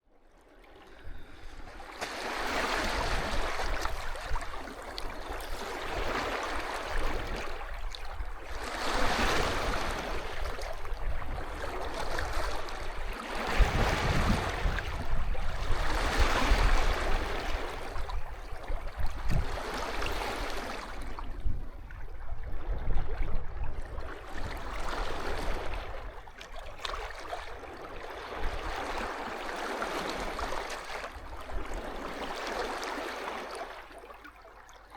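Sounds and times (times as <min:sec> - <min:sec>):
sea waves washing on beach: 0:01.4 - 0:21.4.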